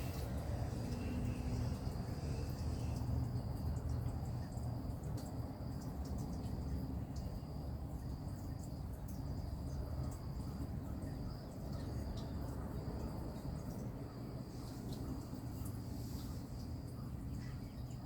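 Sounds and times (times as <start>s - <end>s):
low uneven rumble: 0.0s - 4.9s.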